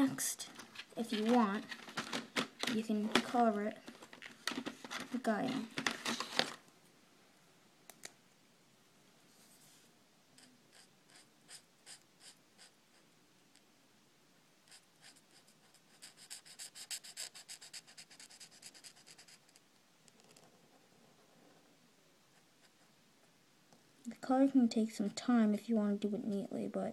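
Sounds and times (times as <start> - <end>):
drawing tool scratching on paper: 10.4 - 13.0, 14.7 - 19.6.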